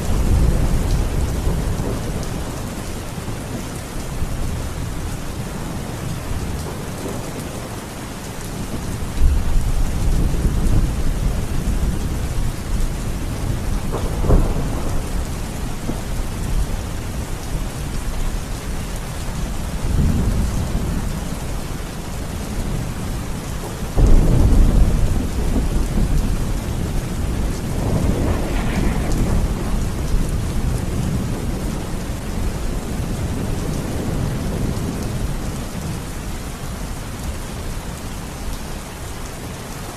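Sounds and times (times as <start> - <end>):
rolling thunder: 0.0 - 7.6, 8.6 - 18.8, 22.3 - 36.0
steady rain falling: 0.0 - 39.9.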